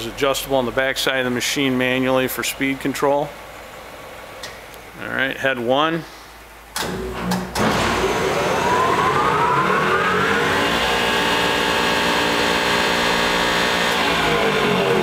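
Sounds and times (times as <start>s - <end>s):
planer head whine spinning up: 7.6s - 15.0s.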